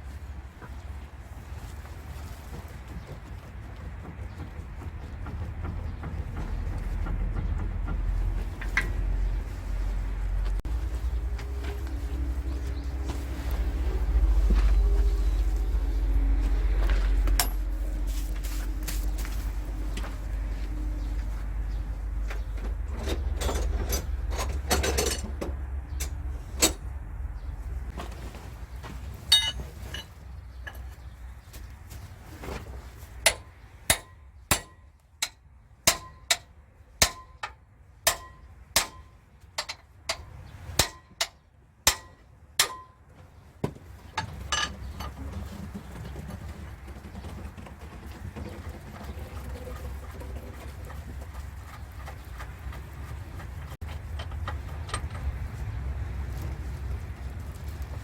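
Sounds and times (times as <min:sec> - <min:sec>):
scattered knocks: 0:03.0 - 0:09.2.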